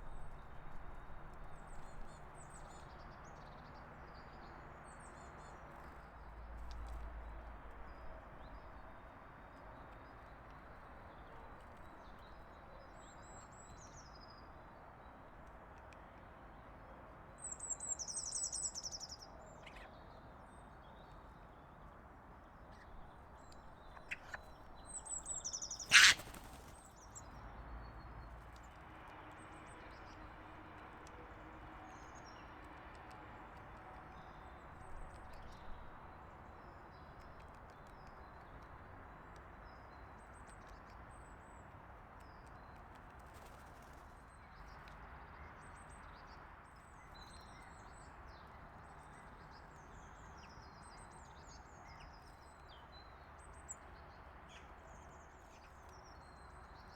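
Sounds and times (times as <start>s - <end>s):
songbirds chirping: 17.4s - 28.8s.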